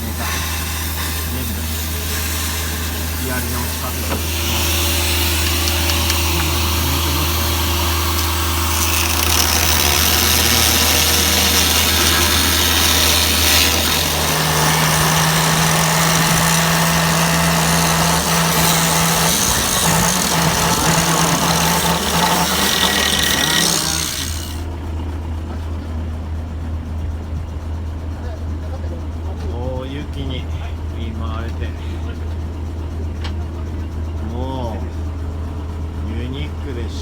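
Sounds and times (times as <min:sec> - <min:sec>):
higher-pitched hum: 0:00.0 - 0:24.7
engine idling: 0:00.0 - 0:37.0.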